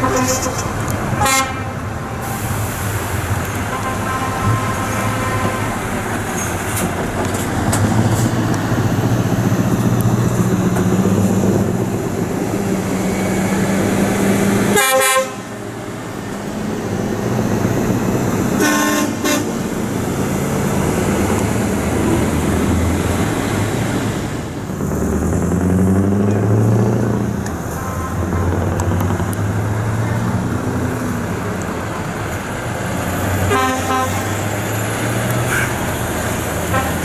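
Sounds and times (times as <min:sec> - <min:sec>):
air horn blasts: 0:00.0 - 0:02.7, 0:03.7 - 0:05.9, 0:14.7 - 0:15.5, 0:18.6 - 0:19.6, 0:33.4 - 0:34.3, 0:35.5 - 0:35.8, 0:36.7 - 0:37.0
lorry diesel engines running: 0:00.0 - 0:37.0.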